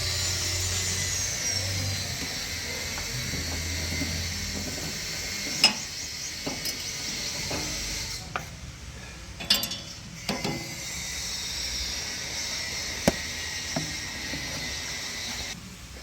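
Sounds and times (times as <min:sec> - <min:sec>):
metallic clanks from machinery: 0:04.7 - 0:07.9, 0:09.4 - 0:10.8.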